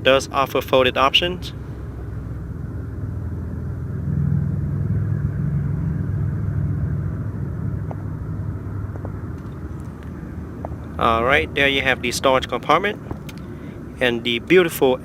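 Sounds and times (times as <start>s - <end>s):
vehicle engine rumble: 0.0s - 15.0s
faint clicks: 13.1s - 13.5s.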